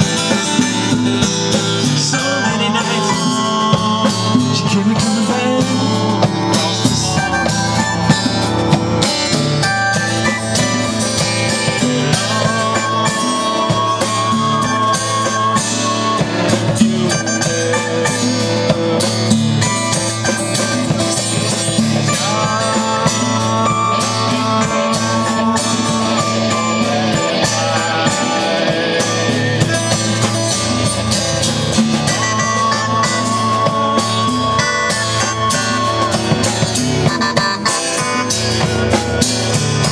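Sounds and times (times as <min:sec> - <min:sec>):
guitars playing rock: 0:00.0 - 0:39.9
steady drum beat: 0:00.0 - 0:39.9.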